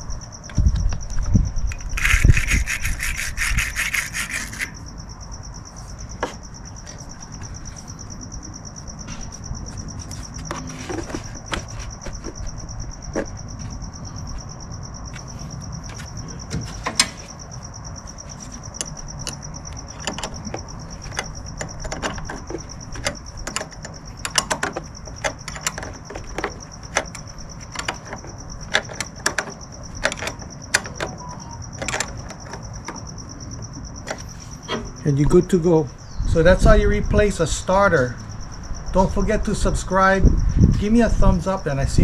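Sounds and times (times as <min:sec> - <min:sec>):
insect trill: 0:00.0 - 0:42.0
hand tools clicking on metal: 0:01.7 - 0:04.8, 0:18.6 - 0:33.0.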